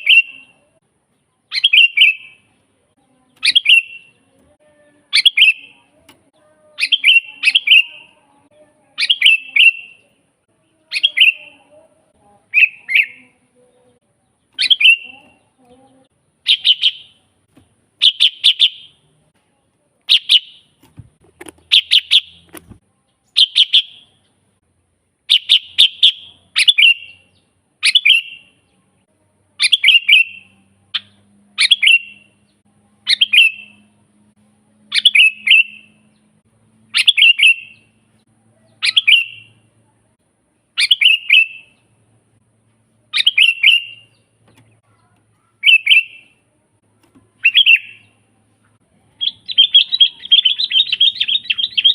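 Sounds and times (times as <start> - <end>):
bird singing clear notes: 0.0 - 0.6, 1.4 - 2.5, 3.2 - 4.4, 5.0 - 8.2, 8.8 - 11.7, 12.4 - 17.3, 20.1 - 20.7, 21.6 - 24.3, 29.6 - 33.9, 34.9 - 38.0, 38.6 - 39.6, 40.8 - 41.9, 43.1 - 46.4, 47.0 - 48.2, 49.0 - 51.9.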